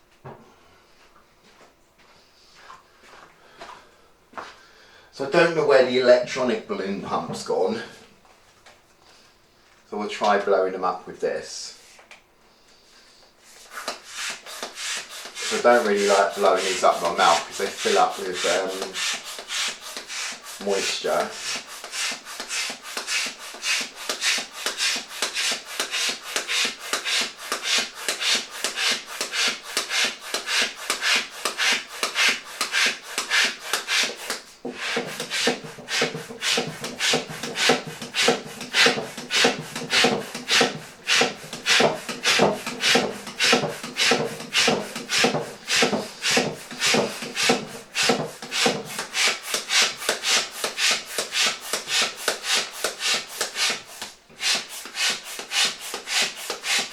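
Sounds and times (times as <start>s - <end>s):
balloon pump strokes: 13.7s - 56.9s.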